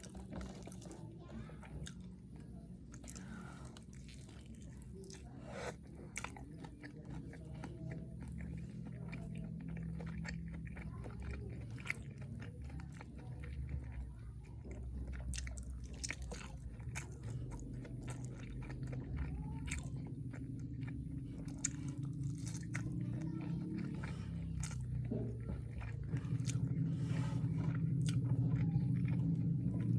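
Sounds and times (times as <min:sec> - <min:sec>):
wet chewing: 0:00.0 - 0:29.9.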